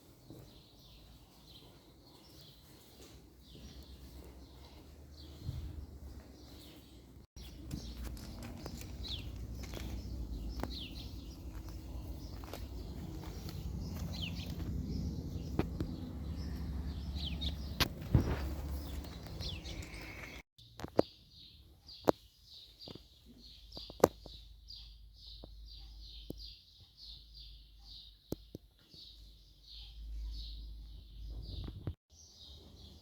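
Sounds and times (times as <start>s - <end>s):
bird chirping: 0.4s - 33.0s
low rumble: 7.6s - 20.4s.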